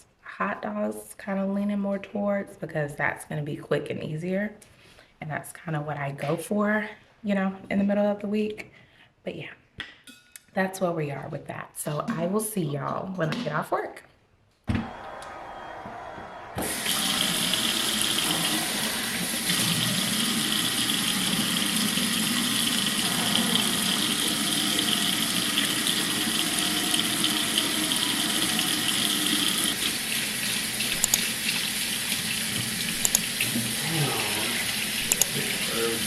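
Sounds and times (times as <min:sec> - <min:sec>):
water running from a tap: 0:16.6 - 0:36.0
sharp clicks: 0:30.9 - 0:31.3, 0:33.0 - 0:33.3, 0:35.0 - 0:35.4.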